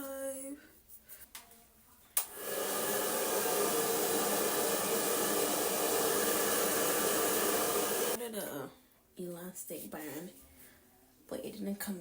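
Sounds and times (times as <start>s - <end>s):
hair dryer blowing: 2.2s - 8.2s.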